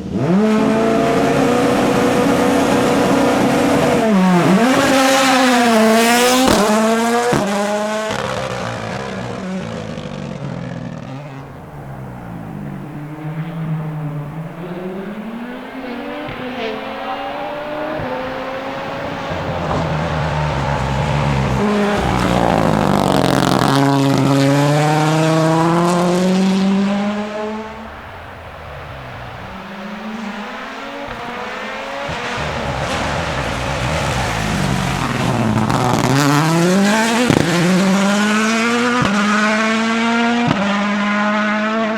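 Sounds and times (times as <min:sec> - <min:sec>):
car engine revving hard: 0:00.0 - 0:41.9.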